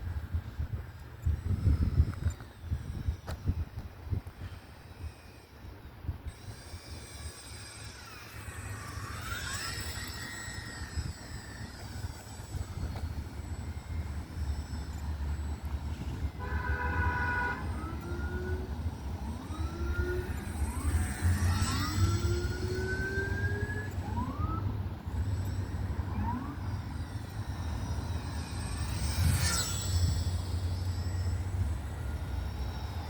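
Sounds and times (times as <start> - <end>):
rc plane motor whining: 0.0 - 33.0
horn-like tone: 16.1 - 18.0.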